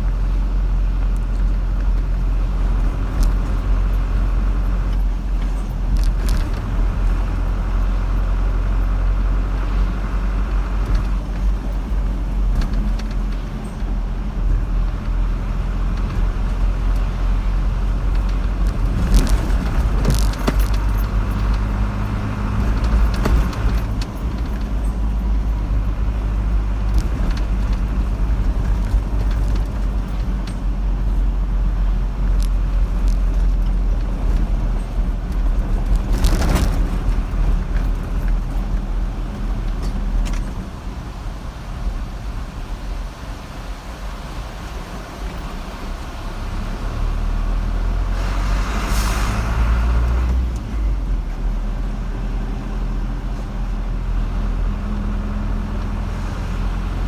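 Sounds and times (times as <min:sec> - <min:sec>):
car engine and tyre rumble: 0:00.0 - 0:57.0
light rattles: 0:01.0 - 0:31.4.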